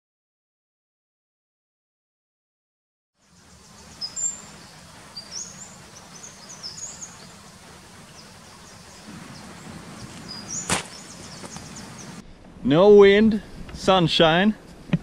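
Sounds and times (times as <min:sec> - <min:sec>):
birds chirping: 0:03.2 - 0:12.2
steady outdoor hiss: 0:03.2 - 0:15.0.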